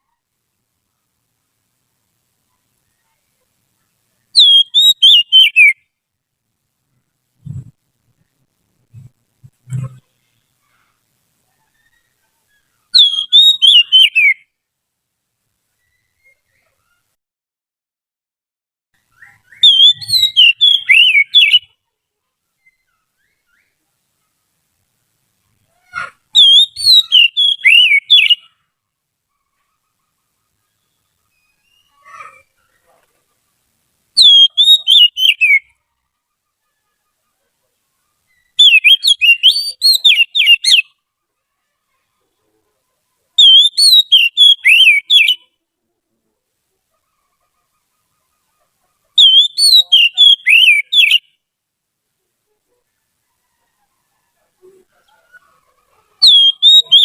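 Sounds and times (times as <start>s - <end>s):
bird singing whistled notes: 4.3s - 5.9s, 11.7s - 14.5s, 19.1s - 21.7s, 26.4s - 28.6s, 30.8s - 32.0s, 34.2s - 35.8s, 38.3s - 41.0s, 43.4s - 45.5s, 49.2s - 51.4s, 56.2s - 57.0s
bird whistling rapid sweeping notes: 19.6s - 21.6s.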